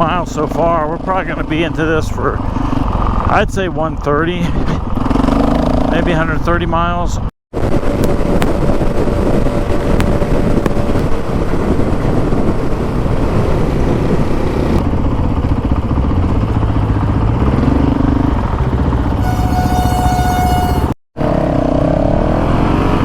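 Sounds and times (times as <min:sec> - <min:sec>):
wind rush on microphone: 0:06.9 - 0:17.2
motorcycle engine running: 0:14.8 - 0:20.9.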